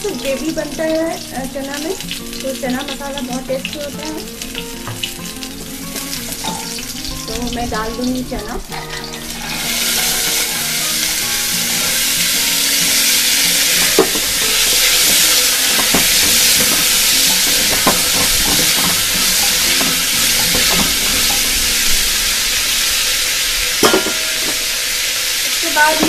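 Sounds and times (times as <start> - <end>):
chickpeas sizzling in hot oil: 0.0 - 26.0
spatula knocking against pot: 13.8 - 21.4.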